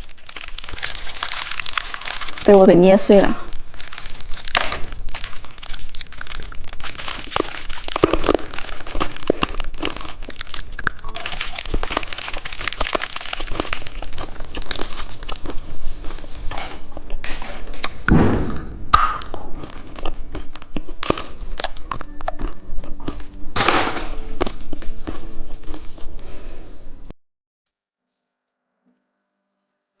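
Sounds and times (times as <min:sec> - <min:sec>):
candy packaging crinkling: 0:00.0 - 0:18.0, 0:19.2 - 0:26.2
small clicks and crunches: 0:00.0 - 0:18.0
dull thump: 0:18.1 - 0:19.0.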